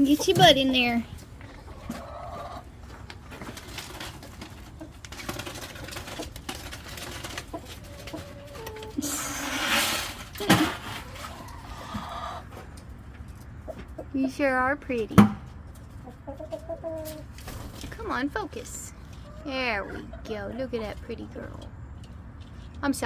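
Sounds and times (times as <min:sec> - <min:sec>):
chickens clucking: 0:00.0 - 0:23.0
rustling clatter: 0:02.8 - 0:08.9.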